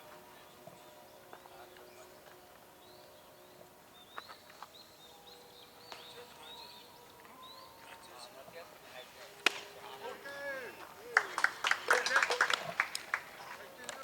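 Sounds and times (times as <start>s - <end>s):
bird chirping: 0.2s - 9.4s.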